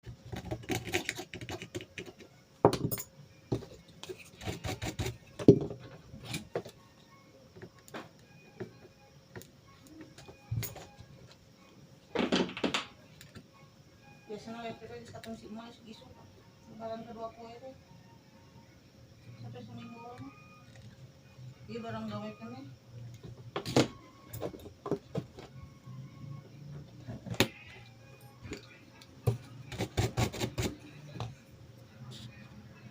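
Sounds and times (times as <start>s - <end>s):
faint steady hum: 12.8s - 32.9s.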